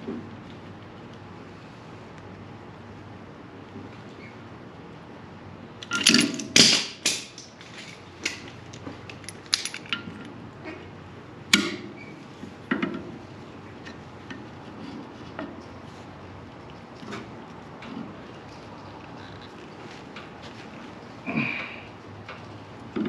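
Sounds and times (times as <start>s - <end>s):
metal tools clanking and knocking: 5.8s - 10.3s.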